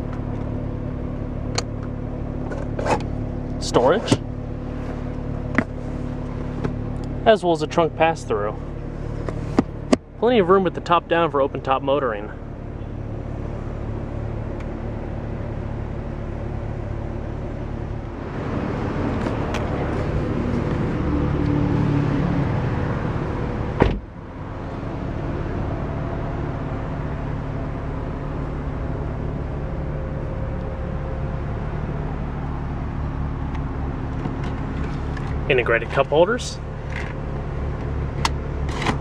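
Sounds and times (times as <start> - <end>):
car engine idling: 0.0 - 39.0
rush of outdoor noise: 12.3 - 39.0.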